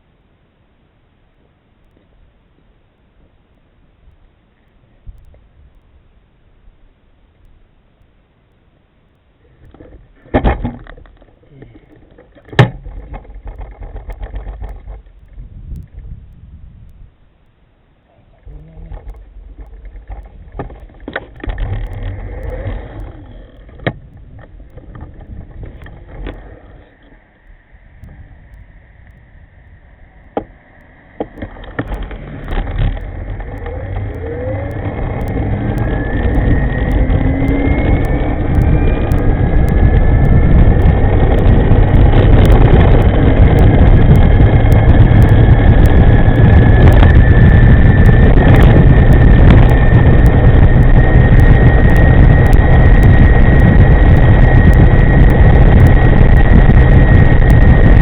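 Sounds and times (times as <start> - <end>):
rushing wind noise: 9.4 - 17.3, 18.3 - 58.0
scooter clicks: 9.6 - 16.0, 18.9 - 27.2, 30.2 - 58.0
electric scooter motor whine: 18.4 - 58.0.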